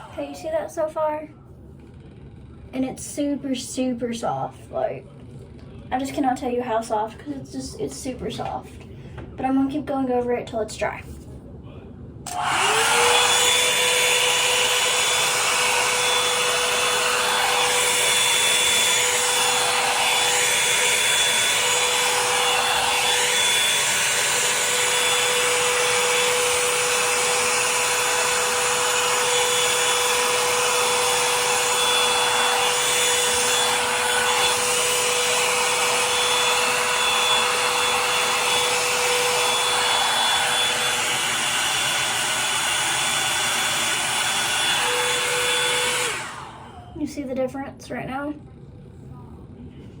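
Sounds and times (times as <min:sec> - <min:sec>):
hair dryer switch: 0:12.3 - 0:46.9
hair dryer brush running: 0:12.3 - 0:47.0.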